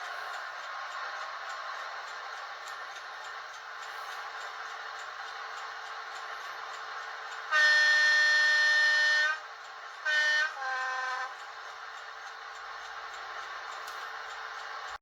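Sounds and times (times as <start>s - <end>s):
two-tone train horn: 7.5s - 11.5s.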